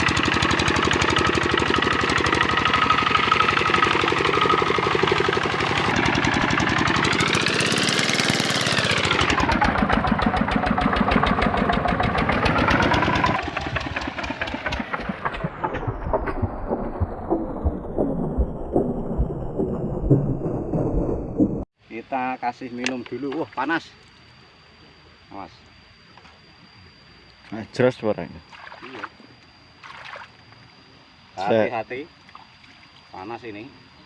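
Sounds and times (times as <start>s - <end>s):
diesel engine knocking beat: 0.0s - 21.6s.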